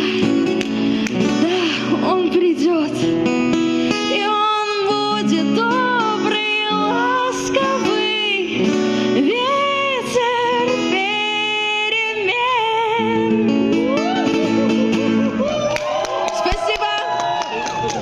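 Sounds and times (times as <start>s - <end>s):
acoustic guitar strumming: 0.0s - 15.4s
woman singing: 1.3s - 3.1s, 4.0s - 14.4s.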